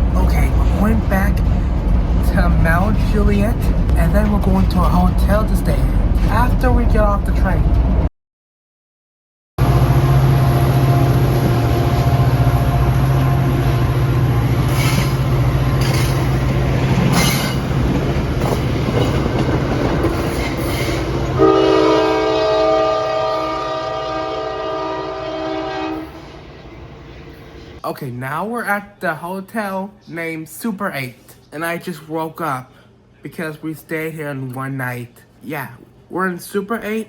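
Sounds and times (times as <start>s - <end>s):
diesel locomotive running: 0.0s - 8.1s, 9.6s - 27.8s
rail clatter: 9.6s - 21.4s
train air horn chord: 21.4s - 26.4s.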